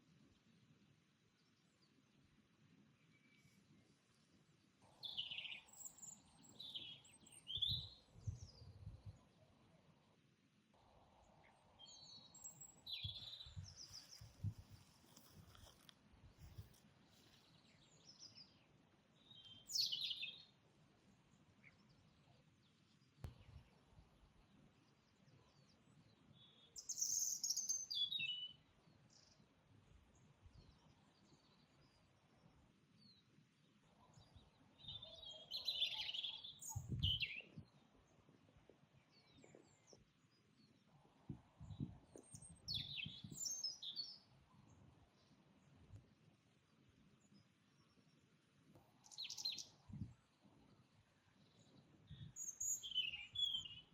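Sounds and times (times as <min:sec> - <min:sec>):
faint outdoor background noise: 0:00.0 - 0:53.9
songbirds chirping: 0:00.0 - 0:53.9
birdsong: 0:02.9 - 0:09.8, 0:11.2 - 0:53.9
click with low thump: 0:23.2 - 0:23.5.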